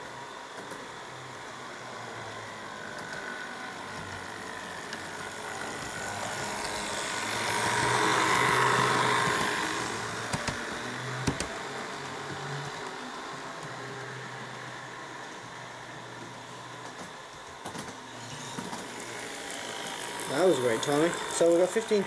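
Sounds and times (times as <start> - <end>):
model train motor whir: 0.0 - 22.0.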